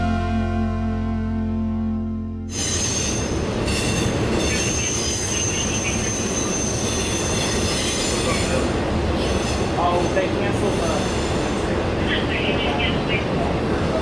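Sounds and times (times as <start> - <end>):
high wheel squeal: 2.5 - 11.6
train wheels rumbling on rails: 2.5 - 14.0.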